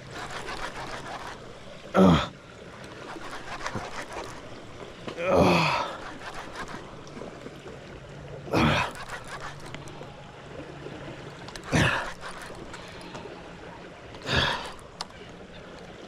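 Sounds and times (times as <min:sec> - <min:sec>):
man gasping strained exhales: 0:05.1 - 0:06.0, 0:11.6 - 0:12.2, 0:14.2 - 0:14.8.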